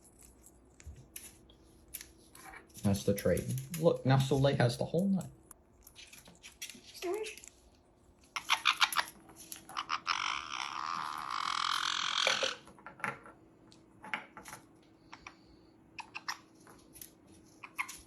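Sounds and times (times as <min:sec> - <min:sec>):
parrot rasping call: 0:09.7 - 0:12.6.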